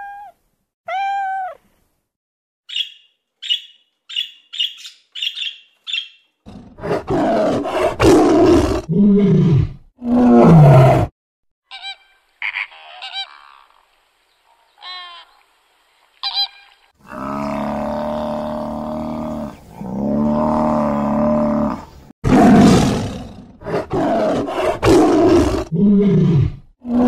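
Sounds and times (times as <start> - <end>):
tiger growling and roaring: 6.5 - 11.1, 17.0 - 27.0.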